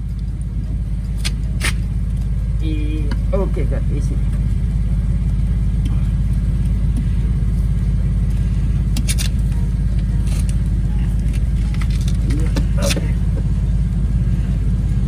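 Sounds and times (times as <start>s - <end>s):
motor drone: 0.0s - 15.0s
sharp clicks: 0.1s - 2.4s.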